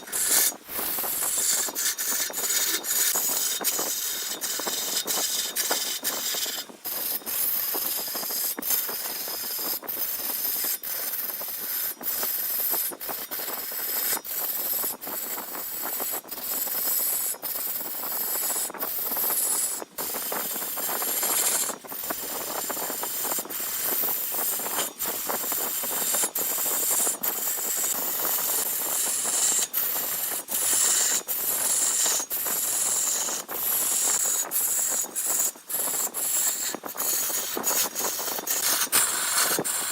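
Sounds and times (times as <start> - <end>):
lathe tool scraping wood: 0.0 - 39.9.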